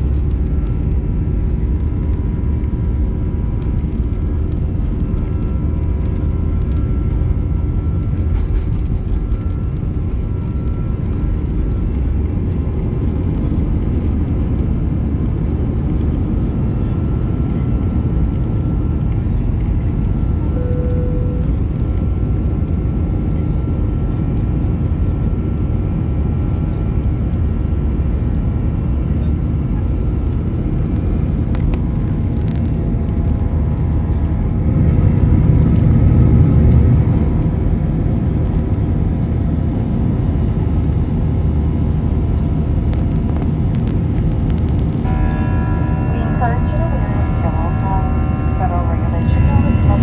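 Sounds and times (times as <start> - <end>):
faint engine whine: 0.0 - 50.0
jet engine rumble in cabin: 0.0 - 50.0
short single tone: 20.5 - 22.2, 45.0 - 50.0.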